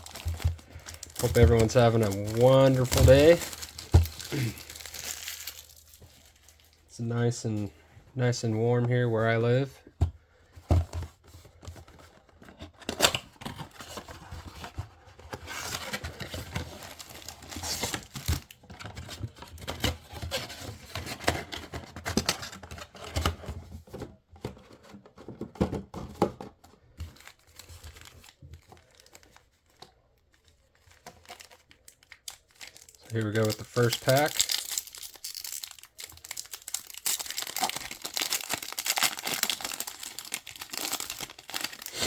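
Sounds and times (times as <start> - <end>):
cardboard and wrappers tearing: 0.0 - 6.8, 12.8 - 18.6, 31.0 - 42.0.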